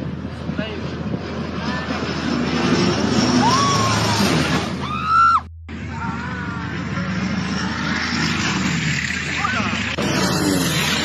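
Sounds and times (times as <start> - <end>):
loud high scream: 3.4 - 6.7
spectators screaming and shouting: 3.4 - 7.0.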